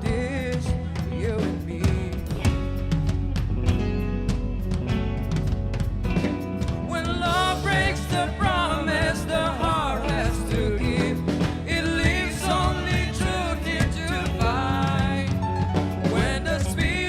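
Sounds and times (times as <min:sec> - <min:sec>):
band playing live: 0:00.0 - 0:17.0
guitar strumming: 0:01.2 - 0:17.0
voices singing: 0:06.8 - 0:17.0.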